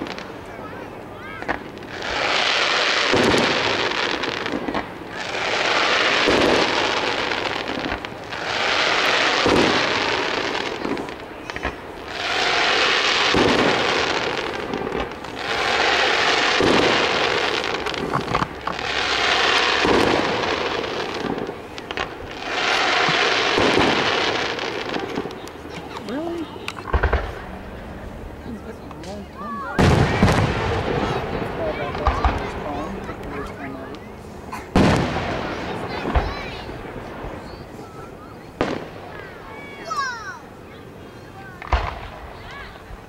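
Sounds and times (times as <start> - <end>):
firework crackling: 0.0 - 43.0
firework shells bursting: 1.4 - 27.6.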